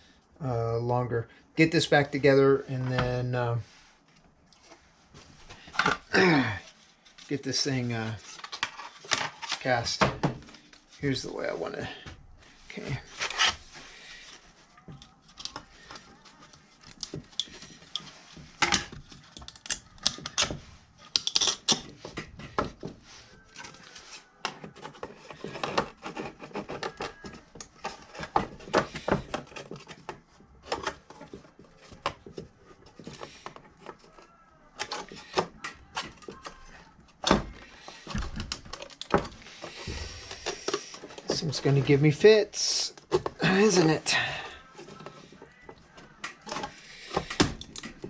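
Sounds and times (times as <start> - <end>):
hard parts clicking and knocking: 43.0 - 48.0.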